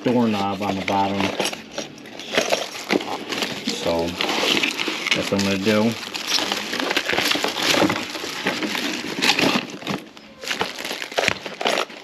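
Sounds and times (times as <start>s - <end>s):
rustling and clattering objects: 0.0s - 12.0s.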